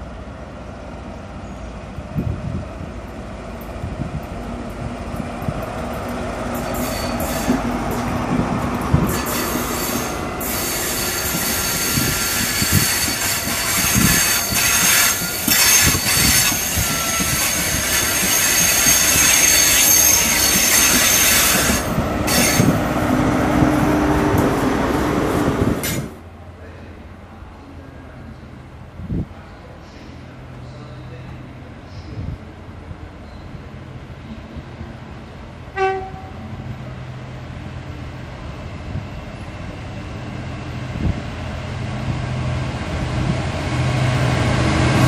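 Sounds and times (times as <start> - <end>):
wheel flange squeal: 6.6 - 7.6, 9.1 - 22.8.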